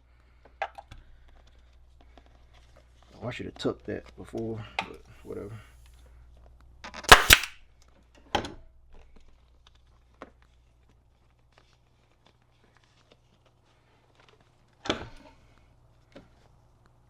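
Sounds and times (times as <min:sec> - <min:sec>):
pneumatic staple gun firing: 0:07.1 - 0:07.6.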